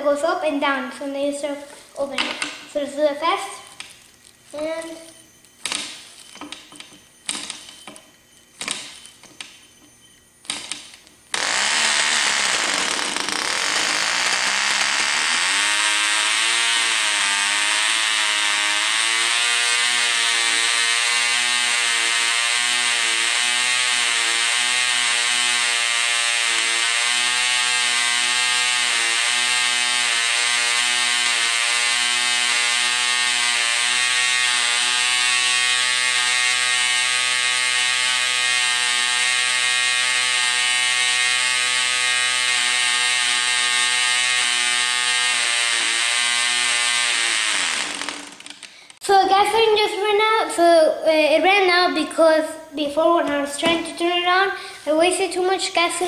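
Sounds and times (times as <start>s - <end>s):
model engine running high-pitched: 11.4s - 48.5s.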